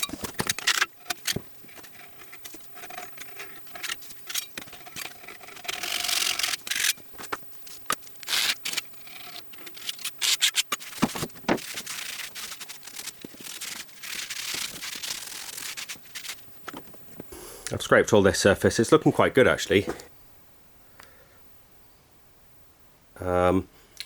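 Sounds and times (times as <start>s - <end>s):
hand scraping metal surface: 0.0s - 17.4s.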